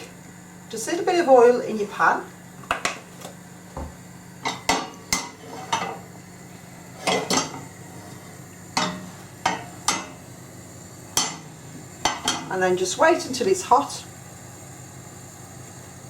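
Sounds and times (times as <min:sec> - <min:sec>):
kitchen utensils clattering: 0:04.4 - 0:06.0, 0:07.0 - 0:07.7, 0:12.1 - 0:12.5.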